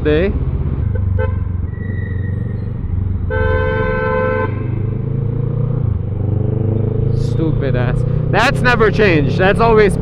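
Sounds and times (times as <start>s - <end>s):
vehicle horn: 0.9s - 1.5s, 3.3s - 4.9s.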